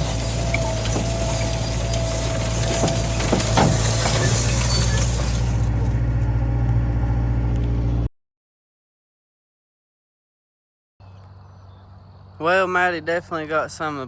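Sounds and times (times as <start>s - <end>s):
clicks and rattles: 0.0s - 6.3s
tractor diesel engine running: 0.0s - 8.1s.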